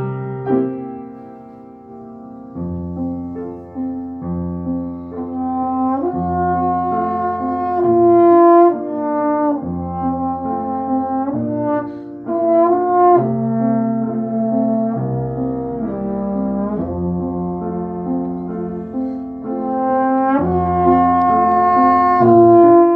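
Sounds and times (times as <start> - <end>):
brass-like sustained chords: 5.1 - 22.9.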